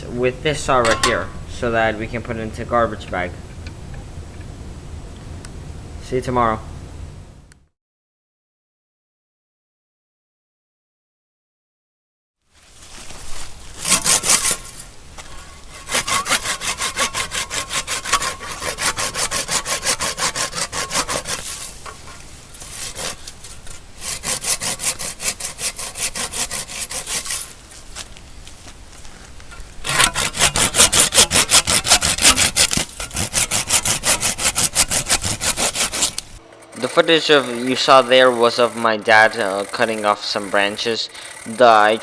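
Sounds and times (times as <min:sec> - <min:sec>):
hand saw cutting branches: 0:12.7 - 0:28.1, 0:29.5 - 0:42.0.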